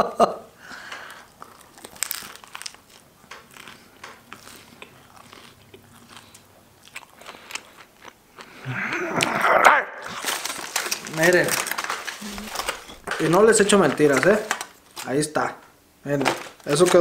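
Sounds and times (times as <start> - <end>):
man chewing food: 0.7 - 9.4, 11.7 - 13.2
vocal sound: 12.2 - 12.9.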